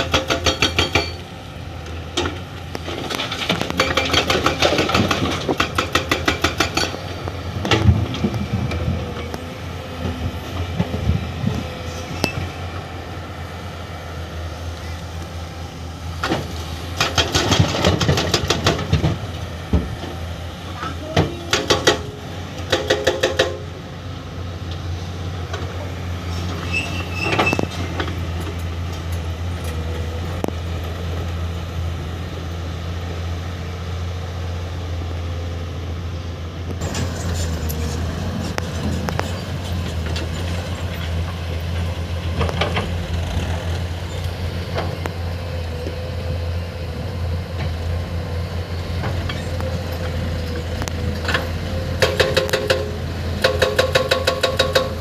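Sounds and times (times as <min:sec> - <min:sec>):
excavator diesel engine running: 0:00.0 - 0:55.0
high squeal: 0:26.3 - 0:27.8.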